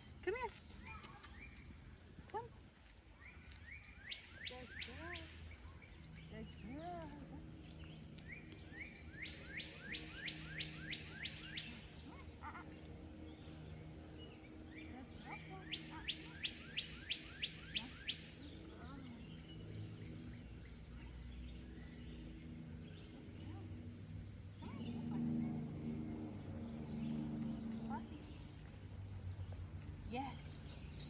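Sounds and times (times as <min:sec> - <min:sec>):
songbird singing down-slurred notes: 0:02.8 - 0:31.0.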